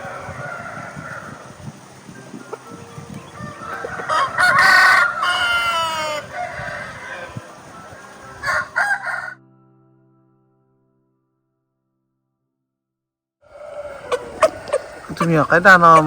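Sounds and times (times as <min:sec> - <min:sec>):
rooster crowing: 0:00.0 - 0:09.4, 0:13.5 - 0:16.0.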